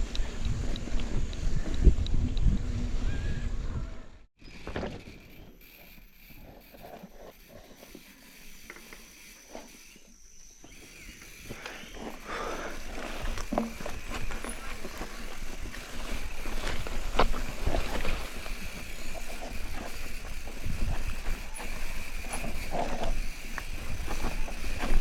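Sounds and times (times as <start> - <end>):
bike clicks and rattles: 0.0 - 2.8, 4.6 - 25.0
wind on microphone: 0.0 - 4.3, 13.2 - 25.0.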